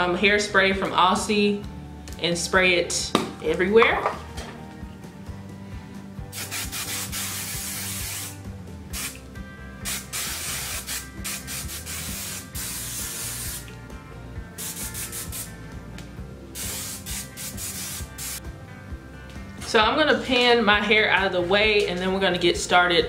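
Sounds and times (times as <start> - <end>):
hairspray hissing bursts: 6.3 - 9.2, 9.8 - 13.7, 14.6 - 15.6, 16.6 - 18.4.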